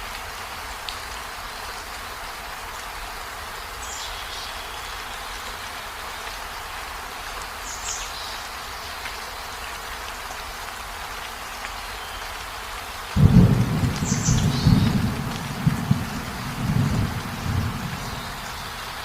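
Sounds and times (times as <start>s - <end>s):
rain falling: 0.0s - 19.0s
thunder rumbling: 13.2s - 19.0s.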